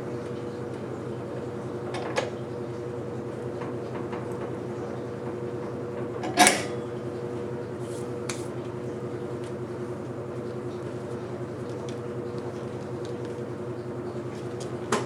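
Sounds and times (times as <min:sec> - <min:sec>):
machine hum: 0:00.0 - 0:15.0
metallic clank: 0:06.2 - 0:06.8.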